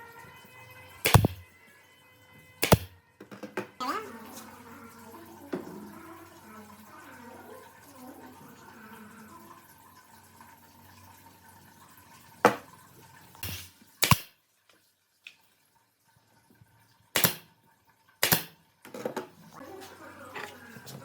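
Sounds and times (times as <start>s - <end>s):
sharp knocks: 1.1s - 1.4s, 2.6s - 2.9s.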